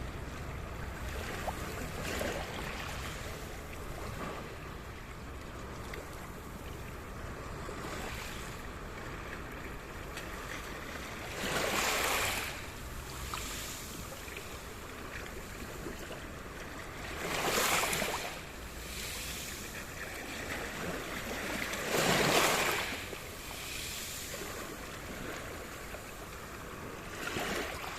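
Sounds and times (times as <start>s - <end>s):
waves breaking: 0.0s - 27.9s
hiss of water: 18.6s - 20.3s, 22.6s - 24.6s.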